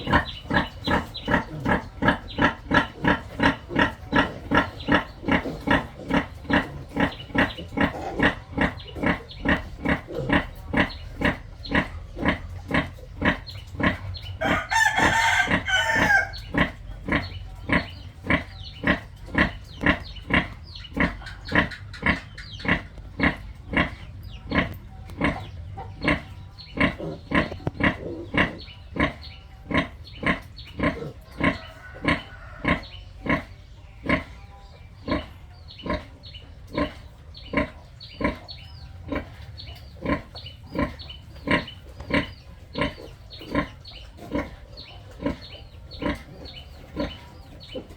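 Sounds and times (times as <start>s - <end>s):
pigs grunting: 0.0s - 47.9s
pig squealing: 13.2s - 19.5s.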